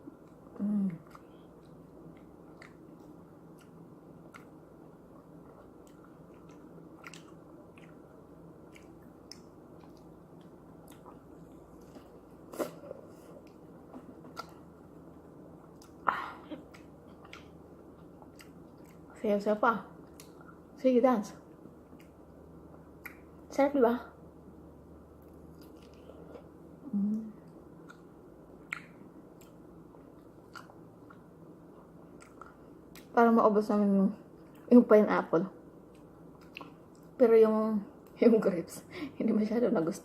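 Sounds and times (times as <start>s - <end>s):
chewing juicy fruit: 0.0s - 19.2s, 19.9s - 20.8s, 21.4s - 23.5s, 25.2s - 26.7s, 27.4s - 33.2s, 35.8s - 37.2s
wet mouth clicks: 27.8s - 29.6s.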